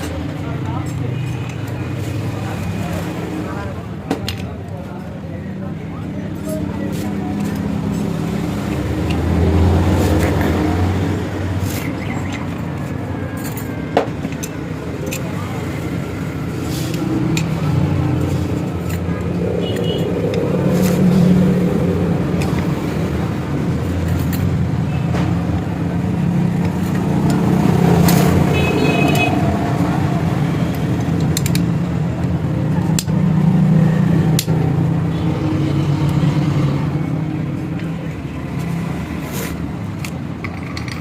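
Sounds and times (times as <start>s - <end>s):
background voices: 14.6s - 24.4s.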